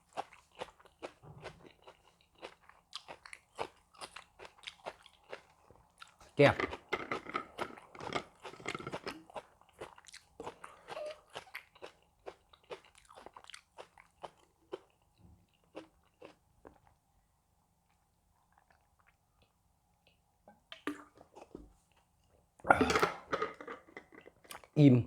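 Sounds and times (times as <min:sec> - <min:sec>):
person chewing crunchy food: 0:00.0 - 0:17.0.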